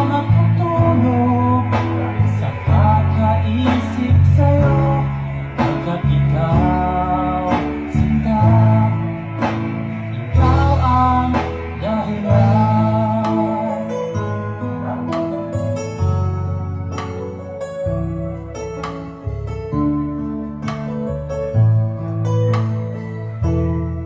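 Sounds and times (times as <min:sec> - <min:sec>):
heavy bass line: 0:00.0 - 0:24.0
song through loudspeakers: 0:00.0 - 0:24.0.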